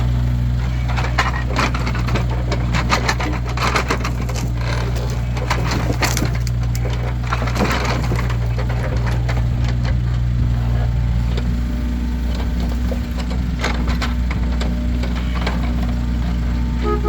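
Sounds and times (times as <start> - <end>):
low engine hum: 0.0 - 17.0
firewood logs knocking together: 0.8 - 10.3.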